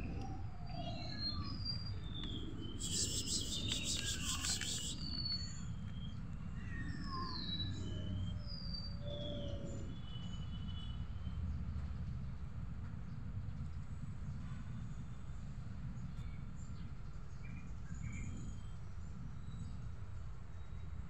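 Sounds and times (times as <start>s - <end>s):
birds chirping and whistling: 0.7s - 5.6s.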